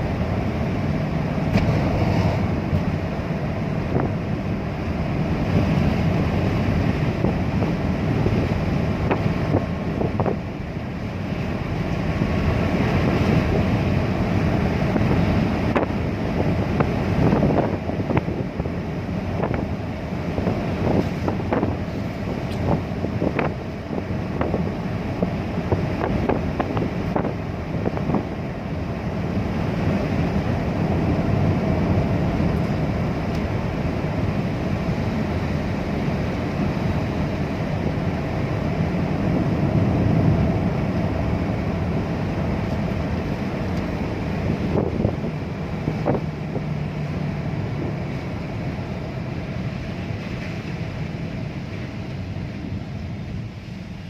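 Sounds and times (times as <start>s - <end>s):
car interior rumble: 0.0s - 54.0s.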